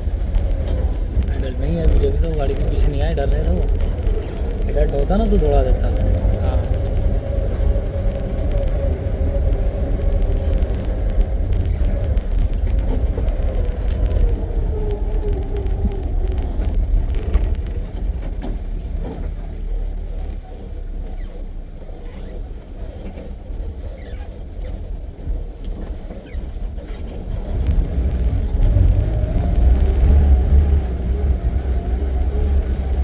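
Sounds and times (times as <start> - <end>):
jeep engine rumbling: 0.0 - 33.0.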